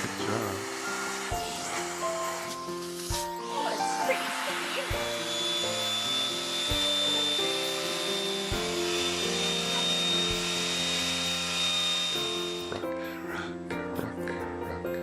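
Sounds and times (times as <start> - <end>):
vacuum cleaner whining: 0.0 - 13.6
background music with slow beat: 0.0 - 15.0.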